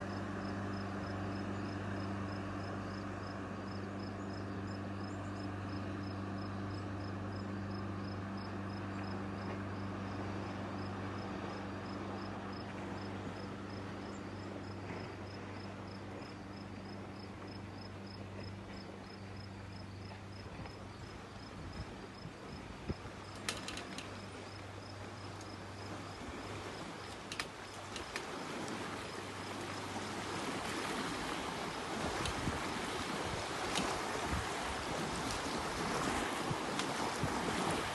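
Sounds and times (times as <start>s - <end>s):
motorboat engine drone: 0.0s - 37.9s
water rushing wash: 21.1s - 37.9s.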